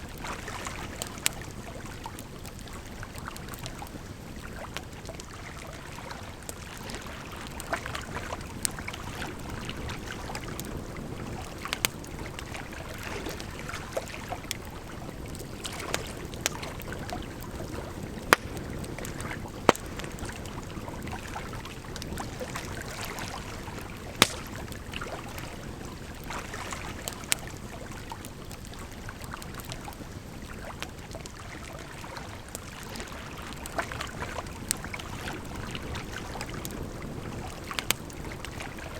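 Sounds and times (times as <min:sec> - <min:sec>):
campfire crackling and popping: 0:00.0 - 0:38.9
flowing water rushing: 0:22.3 - 0:25.4.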